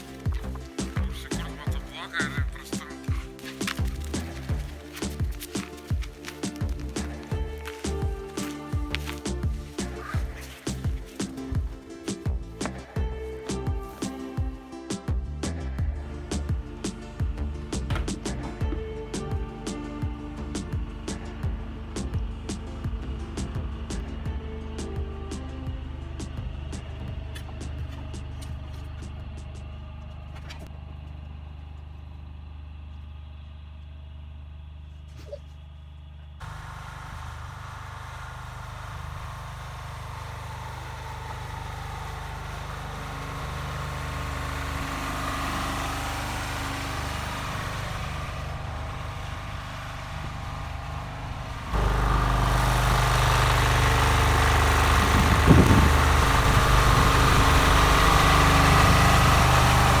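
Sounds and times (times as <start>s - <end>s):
engine running: 0.0s - 60.0s
short thump: 17.8s - 18.9s.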